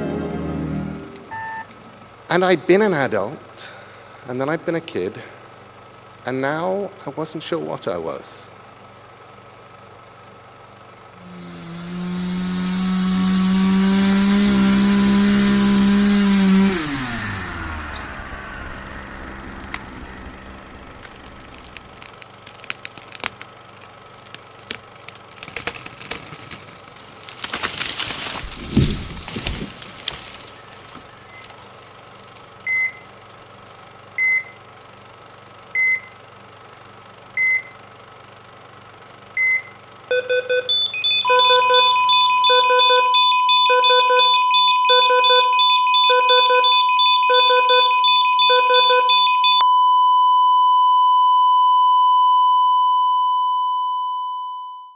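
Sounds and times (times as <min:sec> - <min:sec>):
held electronic tone: 0:00.0 - 0:01.8, 0:15.4 - 0:22.0, 0:40.1 - 0:50.4
electronic beeps: 0:01.1 - 0:01.8, 0:39.4 - 0:51.2.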